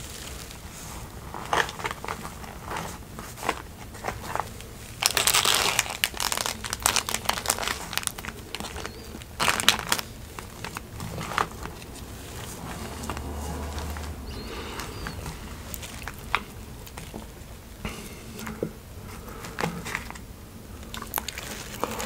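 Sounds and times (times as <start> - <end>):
paper wrapper crinkling: 0.0 - 17.6, 20.8 - 22.0.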